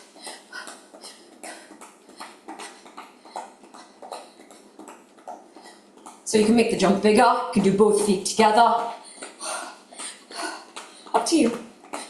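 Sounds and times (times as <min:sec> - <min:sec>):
hard breathing: 0:00.0 - 0:06.2, 0:08.9 - 0:11.2, 0:11.8 - 0:12.0.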